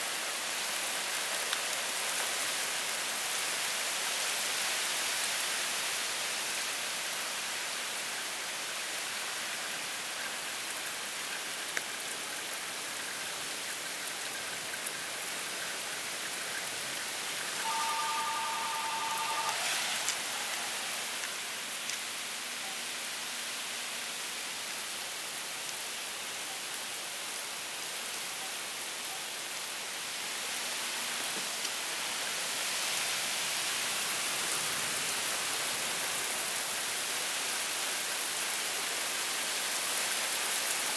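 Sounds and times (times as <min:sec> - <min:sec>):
heavy rain falling: 0:00.0 - 0:40.9
two-pitch steady tone: 0:17.6 - 0:21.4.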